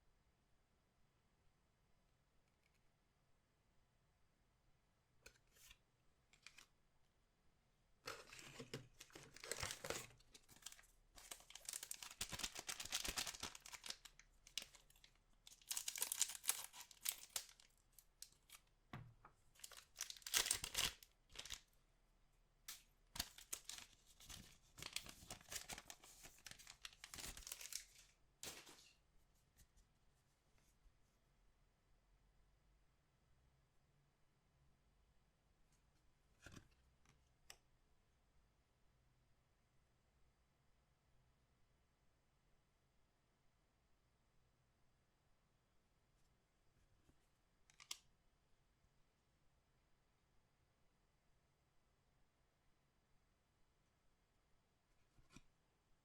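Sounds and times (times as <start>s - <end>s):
card packaging tearing and crinkling: 8.1s - 17.7s, 19.6s - 21.6s, 23.2s - 28.8s.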